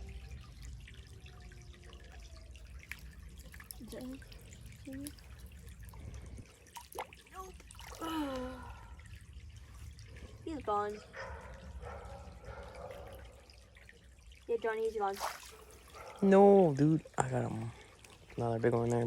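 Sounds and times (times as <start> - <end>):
creek water trickling: 0.0 - 19.0.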